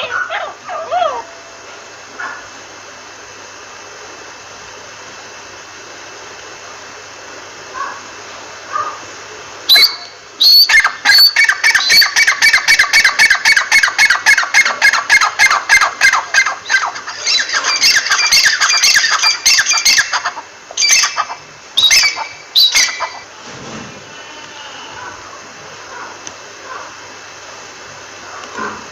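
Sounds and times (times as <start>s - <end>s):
francolin calling sharp notes: 9.7s - 23.3s.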